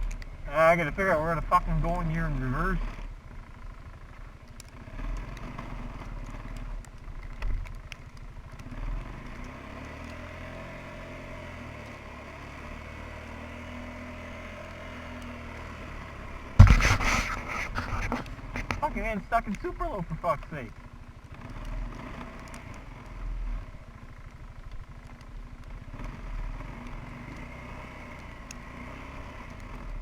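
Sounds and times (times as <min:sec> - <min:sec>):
quad engine running at low revs: 0:00.0 - 0:30.0
knocks and rattles: 0:16.6 - 0:18.9.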